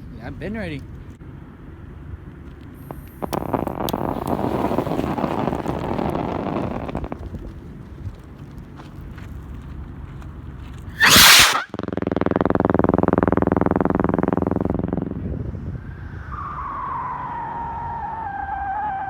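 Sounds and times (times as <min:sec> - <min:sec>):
firework pulsing buzz: 0:02.8 - 0:07.4, 0:11.0 - 0:15.4
firework hiss: 0:02.9 - 0:07.3, 0:11.0 - 0:11.7
firework falling whistle: 0:11.0 - 0:11.8, 0:16.2 - 0:19.0.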